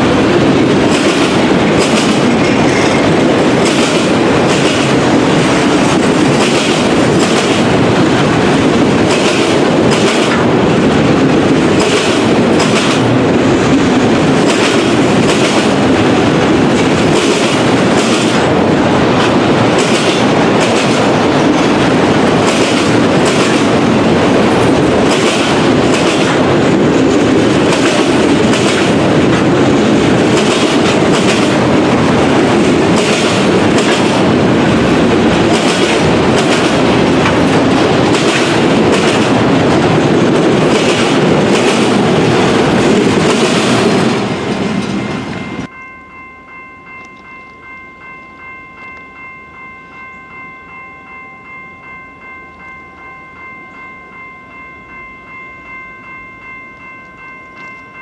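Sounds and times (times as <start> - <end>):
steel wheels rumbling on rail: 0.0 - 58.0
wheels clacking over rail joints: 0.2 - 45.7.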